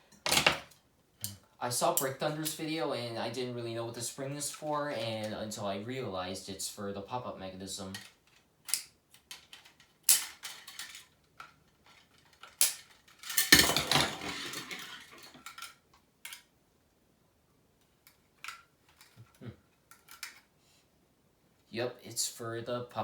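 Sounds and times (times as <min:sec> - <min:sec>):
clattering rattle: 0:11.8 - 0:15.8.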